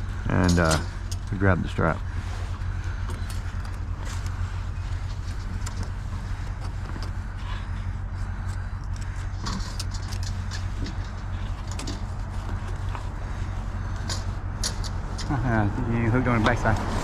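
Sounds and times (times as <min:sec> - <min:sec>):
vehicle engine idling: 0:00.0 - 0:17.0
strap hooks clicking and clinking: 0:00.4 - 0:01.4, 0:08.2 - 0:13.1, 0:13.9 - 0:15.4.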